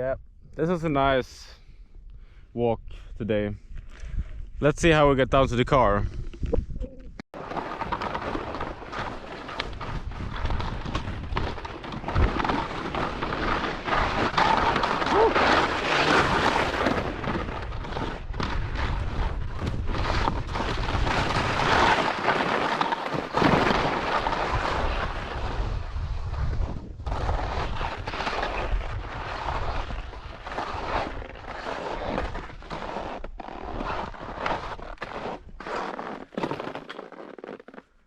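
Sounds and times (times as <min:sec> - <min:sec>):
wind buffeting microphone: 0:24.5 - 0:28.1.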